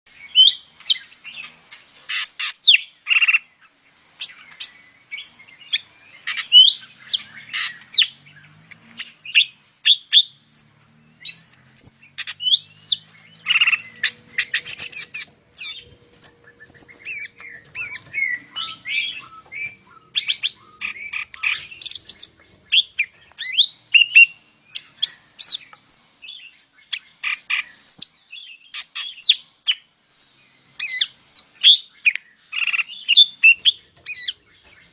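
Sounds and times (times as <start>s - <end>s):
bird singing varied chirps: 4.3s - 29.5s, 30.1s - 34.9s.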